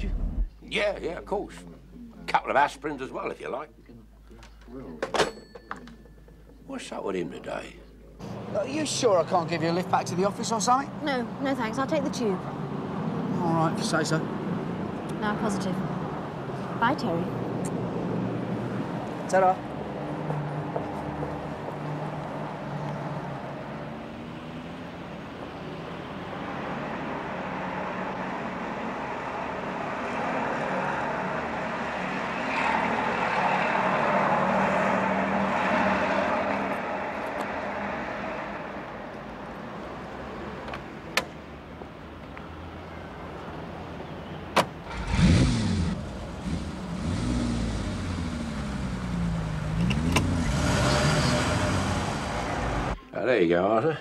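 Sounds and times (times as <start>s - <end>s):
street traffic: 0.0s - 54.0s
car engine starting and revving: 44.8s - 53.0s.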